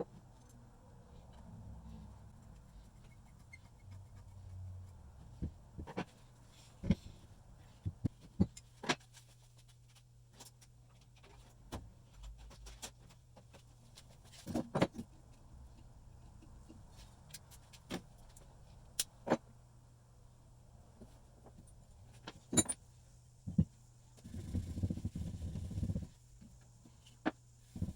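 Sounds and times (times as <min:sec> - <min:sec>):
metal tools clicking and knocking: 0:22.4 - 0:22.8.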